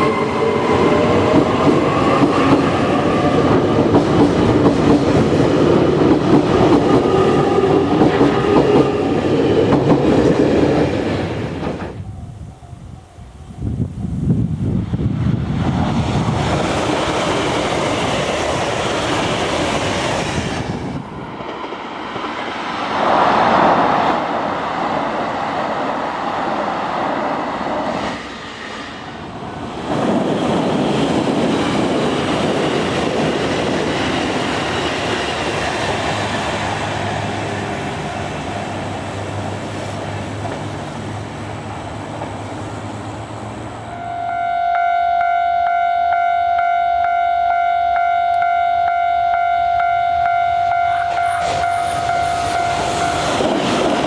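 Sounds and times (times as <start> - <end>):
train wheels clickety-clack: 0.0 - 12.0, 29.7 - 36.8, 40.3 - 40.7, 50.6 - 54.0.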